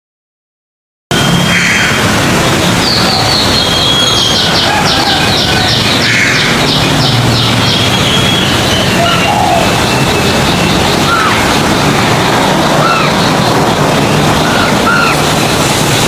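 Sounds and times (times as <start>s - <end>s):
small bird calling: 2.8s - 15.5s.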